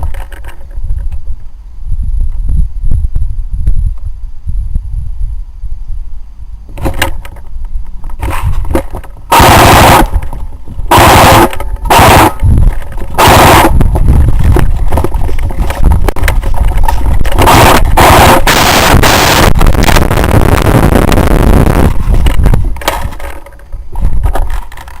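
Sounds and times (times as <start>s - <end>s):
airsoft gun rapid fire: 9.3s - 10.2s, 10.9s - 12.4s, 13.2s - 13.8s, 17.4s - 20.0s.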